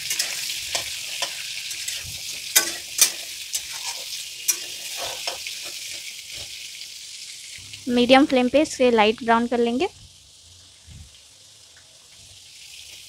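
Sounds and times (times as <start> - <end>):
metal spatula scraping a pan: 0.0 - 6.6
food frying in hot oil: 0.0 - 13.0.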